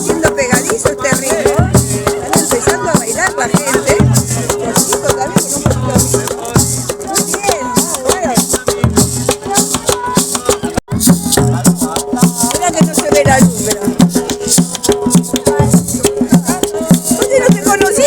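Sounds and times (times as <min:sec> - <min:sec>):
cumbia band playing: 0:00.0 - 0:18.0
shaker rhythm: 0:00.0 - 0:18.0
voices singing: 0:00.0 - 0:18.0.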